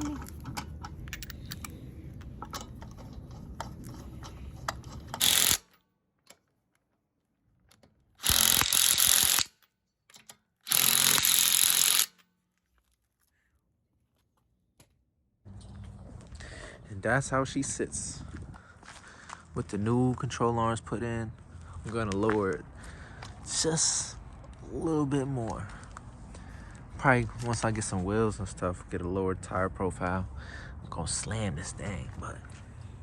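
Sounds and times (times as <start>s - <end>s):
power tool bursts: 5.2s - 5.7s, 8.2s - 9.5s, 10.6s - 12.2s.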